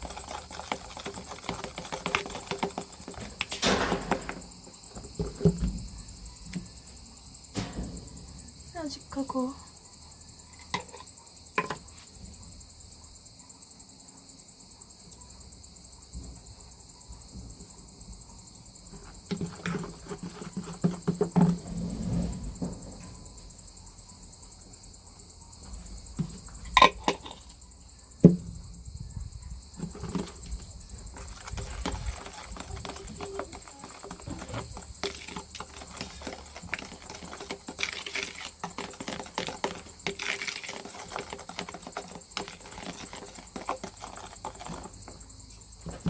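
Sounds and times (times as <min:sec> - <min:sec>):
scraping and stirring batter: 0:00.0 - 0:07.0, 0:10.5 - 0:12.0, 0:18.8 - 0:23.3, 0:25.6 - 0:27.7, 0:29.4 - 0:46.0
crickets chirping: 0:00.0 - 0:46.0.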